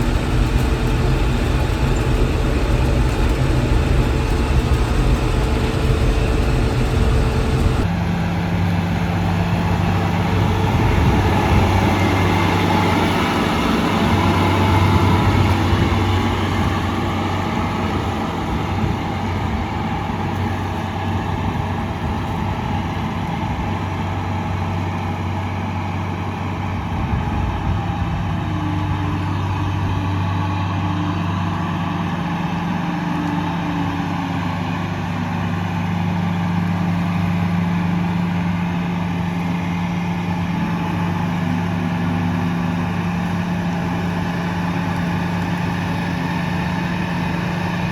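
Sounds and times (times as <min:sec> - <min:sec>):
combine engine hum: 0:00.0 - 0:47.9.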